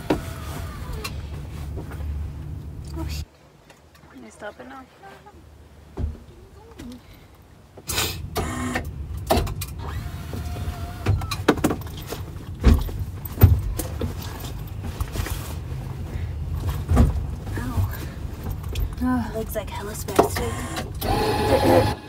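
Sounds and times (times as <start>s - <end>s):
thumps and rustles in seat: 5.9s - 6.9s, 11.0s - 19.0s
car engine starting and running: 7.9s - 22.0s.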